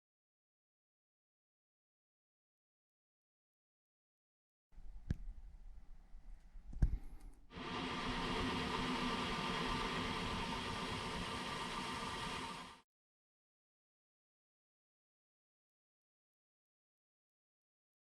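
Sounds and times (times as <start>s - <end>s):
click: 6.7s - 7.4s
dishwasher running: 7.5s - 12.8s.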